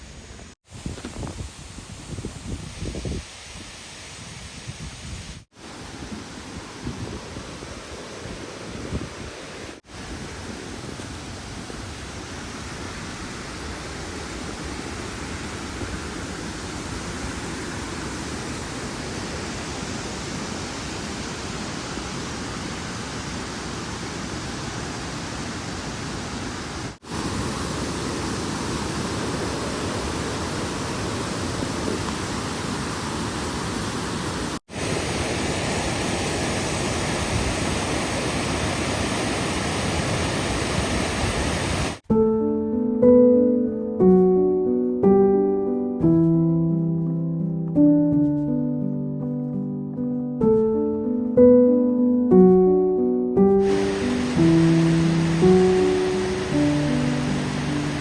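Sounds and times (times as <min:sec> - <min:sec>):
steady rushing noise: 0:53.6 - 0:58.0.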